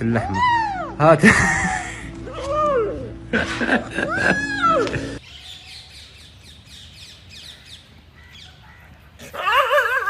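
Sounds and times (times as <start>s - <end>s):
small birds chirping: 5.2s - 9.2s.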